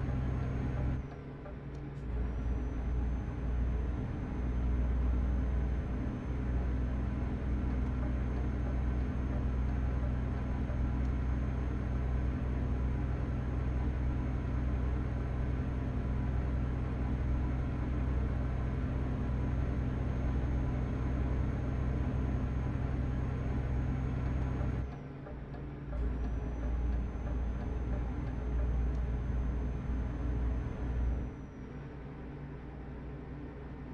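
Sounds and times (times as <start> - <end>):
truck engine and road rumble: 0.0 - 33.9.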